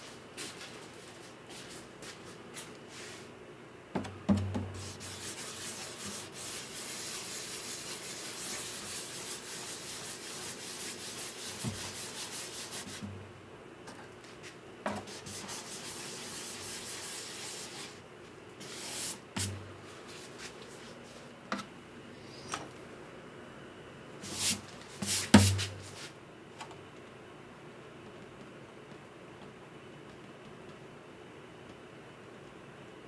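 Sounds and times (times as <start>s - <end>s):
sandpaper sanding wood: 4.8s - 13.0s, 15.1s - 18.0s.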